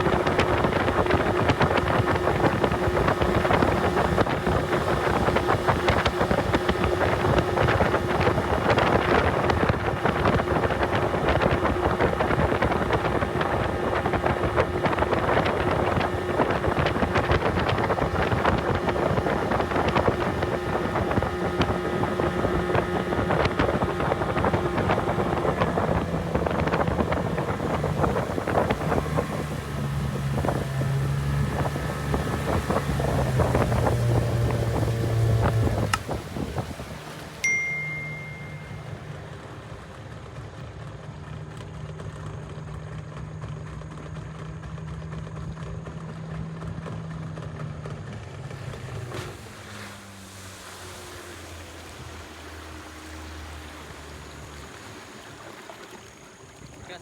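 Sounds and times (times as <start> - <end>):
wind buffeting microphone: 0.0 - 37.4
outboard motor running: 0.0 - 57.0.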